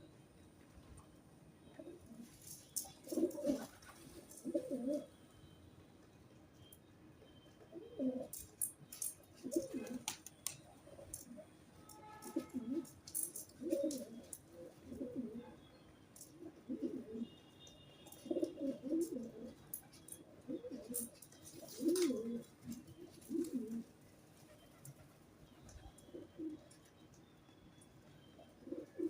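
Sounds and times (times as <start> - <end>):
pigeons cooing: 1.8 - 5.1, 7.7 - 8.4, 9.4 - 10.2, 12.1 - 15.6, 16.2 - 17.4, 18.1 - 26.8, 28.4 - 29.0.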